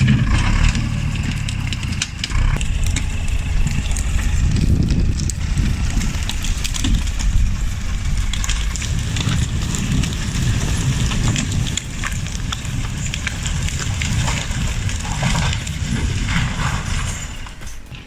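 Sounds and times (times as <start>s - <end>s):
heavy diesel engine labouring: 0.0s - 18.0s
knocks and clatter: 0.0s - 18.0s.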